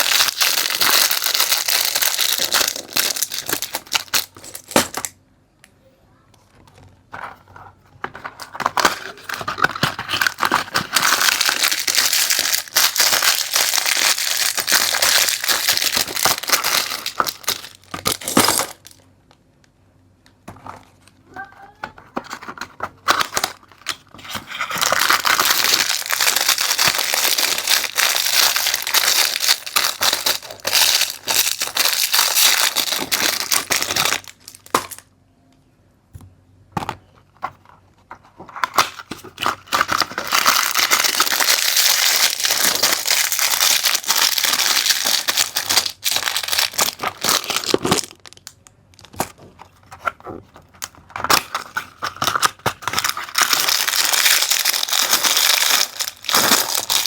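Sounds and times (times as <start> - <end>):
plastic packaging crinkling: 0.0 - 5.2, 8.0 - 19.0, 22.2 - 35.0, 38.5 - 57.0.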